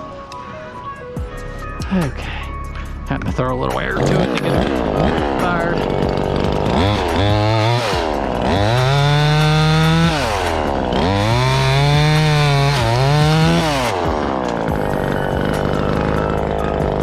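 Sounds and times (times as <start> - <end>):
chainsaw engine revving: 3.8 - 17.0.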